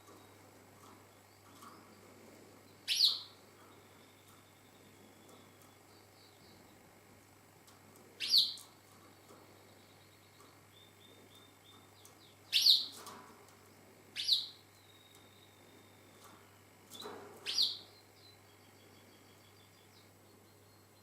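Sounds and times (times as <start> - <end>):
canary chirps: 2.8 - 6.8, 8.2 - 8.8, 9.6 - 13.1, 14.2 - 21.0.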